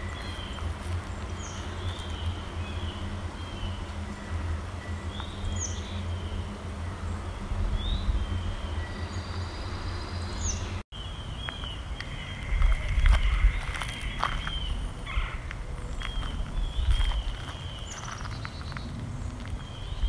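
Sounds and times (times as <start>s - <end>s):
footsteps crunching on gravel: 0.0s - 2.9s, 11.4s - 20.0s
low steady rumble: 0.0s - 20.0s
small birds chirping: 0.0s - 20.0s.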